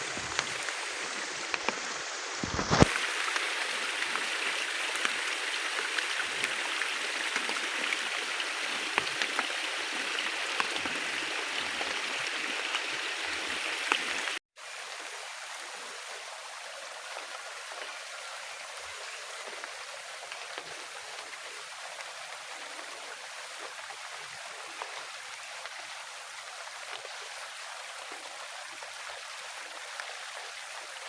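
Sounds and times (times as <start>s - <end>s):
heavy rain falling: 0.0s - 14.4s.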